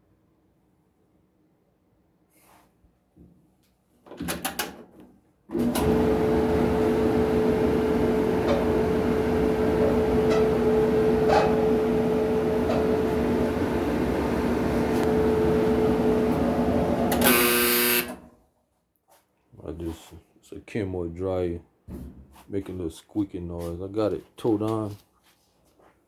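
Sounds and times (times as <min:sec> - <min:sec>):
clothes dryer running: 0:05.5 - 0:18.4
dryer drum squeaking: 0:05.6 - 0:18.1.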